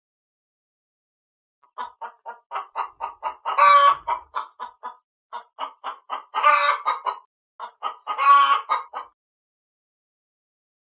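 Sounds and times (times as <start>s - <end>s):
chicken clucking: 1.6s - 9.2s
chicken squawks: 1.7s - 9.2s.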